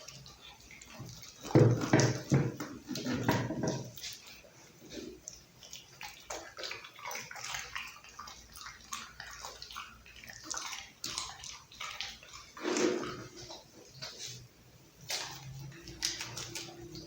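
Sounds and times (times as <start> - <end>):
dog gulping: 0.0 - 14.4
dog chewing wetly: 0.0 - 17.0.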